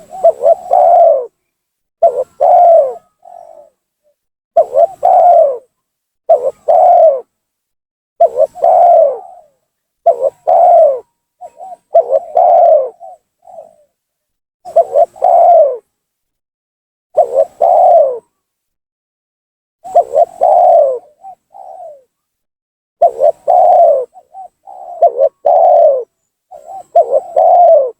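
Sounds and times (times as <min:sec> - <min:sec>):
dove cooing: 0:00.0 - 0:01.4, 0:02.0 - 0:07.3, 0:08.2 - 0:14.0, 0:14.7 - 0:15.9, 0:17.2 - 0:18.4, 0:19.8 - 0:22.2, 0:23.0 - 0:27.9.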